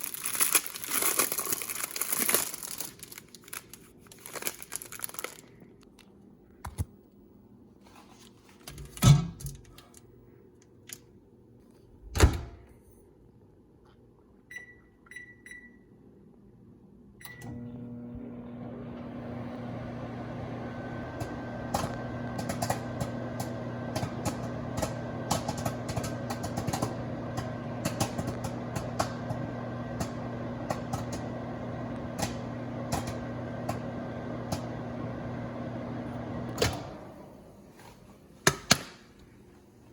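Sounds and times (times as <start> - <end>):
microwave oven humming: 14.4 - 38.9
keypad beeps: 14.5 - 15.8
popcorn popping: 21.2 - 34.8.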